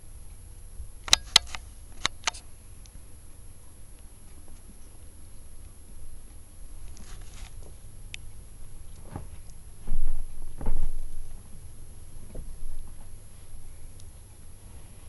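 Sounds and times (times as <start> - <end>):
light pattering and scuffing taps: 6.9 - 7.8.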